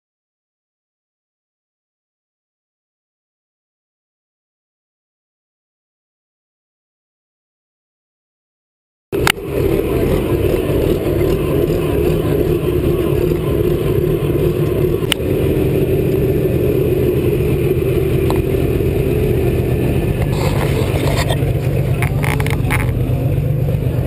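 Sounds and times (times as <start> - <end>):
tractor diesel engine running: 9.2 - 24.0.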